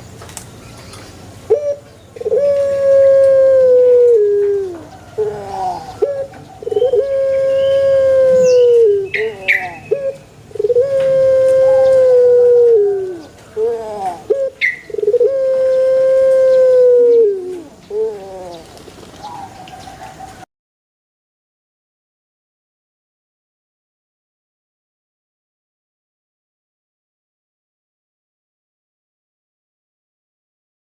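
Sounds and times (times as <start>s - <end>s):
dove cooing: 1.5s - 20.4s.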